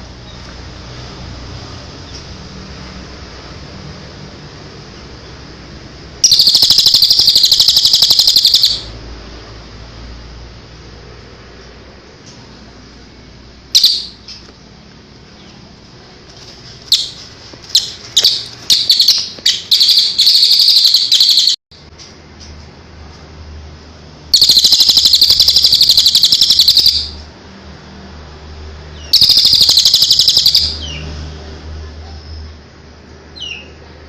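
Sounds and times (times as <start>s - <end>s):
songbird chirping and trilling: 6.2s - 9.0s, 13.7s - 14.5s, 16.9s - 21.6s, 24.4s - 27.2s, 28.9s - 31.1s, 33.3s - 33.8s.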